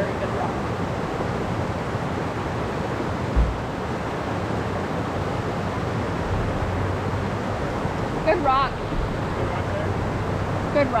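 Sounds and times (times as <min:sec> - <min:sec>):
waterfall and creek water rushing: 0:00.0 - 0:11.0
low thump: 0:03.4 - 0:03.7.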